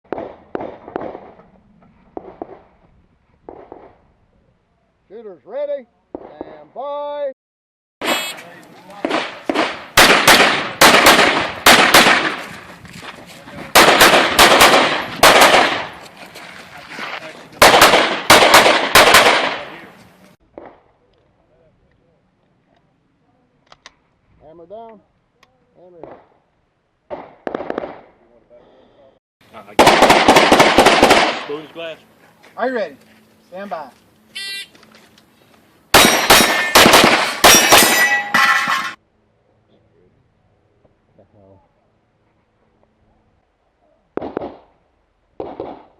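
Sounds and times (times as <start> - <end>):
rapid pistol fire: 0.1 - 1.4, 9.0 - 12.5, 13.8 - 15.9, 17.6 - 19.8, 27.1 - 28.1, 29.8 - 31.6, 35.9 - 37.9, 44.2 - 44.7, 45.4 - 45.9
steel targets ringing: 36.0 - 39.0.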